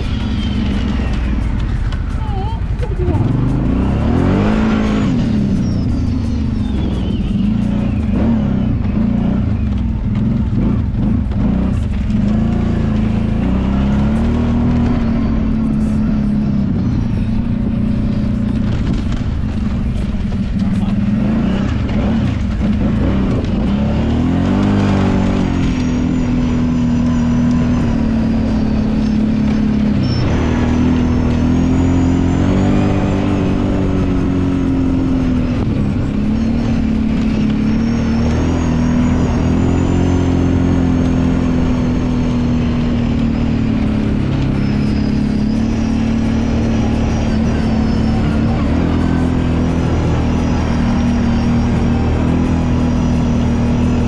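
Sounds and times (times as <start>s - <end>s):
atv engine revving under load: 0.0s - 54.0s.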